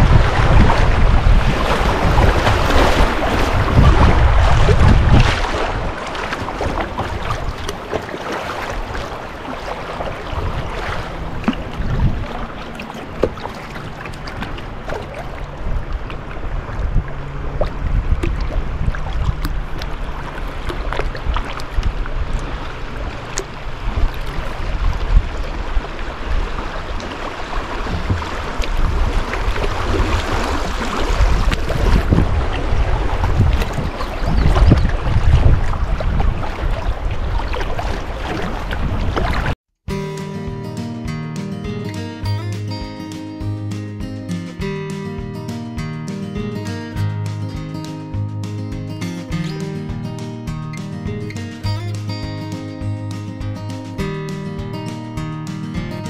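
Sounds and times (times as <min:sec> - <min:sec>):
wind buffeting microphone: 0:00.0 - 0:39.6
river water splashing and rushing: 0:00.0 - 0:56.0.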